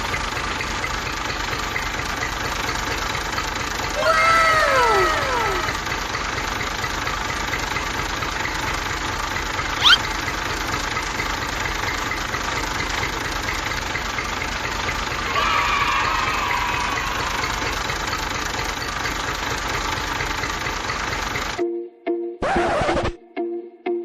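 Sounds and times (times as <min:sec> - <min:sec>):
falling tone: 0:09.8 - 0:10.1
short rising chirp: 0:09.8 - 0:10.1.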